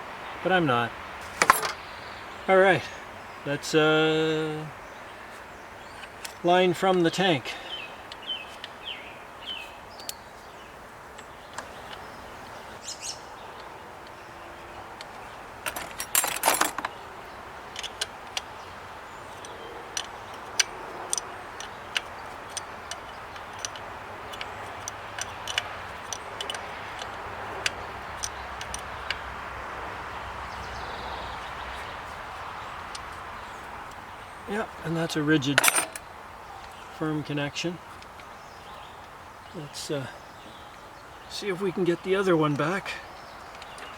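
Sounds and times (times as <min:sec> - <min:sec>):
hand tools clicking and tapping: 0:14.8 - 0:17.0, 0:17.6 - 0:29.6, 0:35.4 - 0:36.8, 0:43.5 - 0:43.9
metallic clatter: 0:15.6 - 0:16.9, 0:35.6 - 0:36.0.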